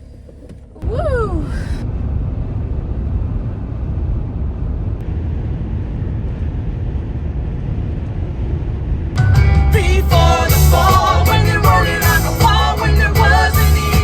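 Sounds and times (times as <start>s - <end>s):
minivan road and engine noise: 0.0s - 14.0s.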